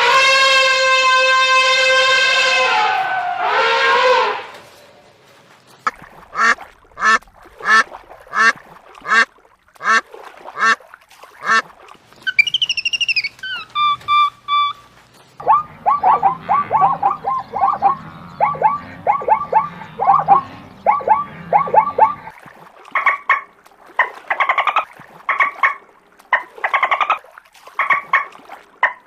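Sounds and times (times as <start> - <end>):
quick repeated chirping: 12.2 - 19.7
animal calls: 12.2 - 22.3
whistled call rising and falling: 12.2 - 22.3.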